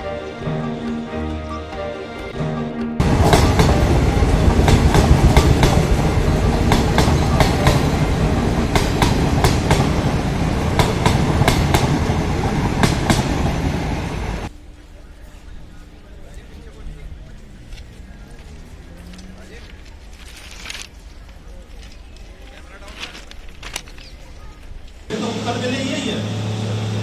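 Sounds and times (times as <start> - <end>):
train wheels rumbling: 2.8 - 14.5
wheels clacking over rail joints: 3.0 - 14.5.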